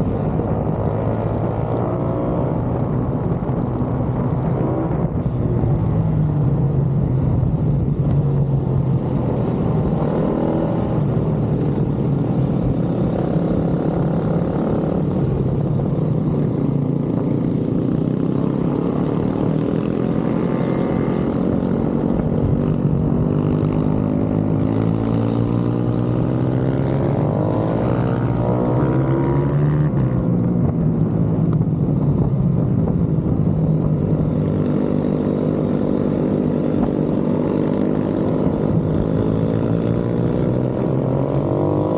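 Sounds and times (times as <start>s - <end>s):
pit bike engines revving: 7.0s - 30.2s, 31.4s - 41.9s.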